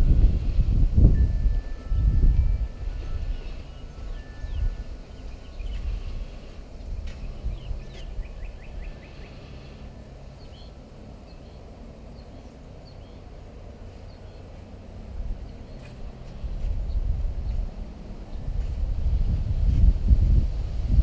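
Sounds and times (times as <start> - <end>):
wind rumble on microphone: 0.0 - 9.6, 14.8 - 21.0
small birds chirping: 3.2 - 14.8, 15.4 - 18.7.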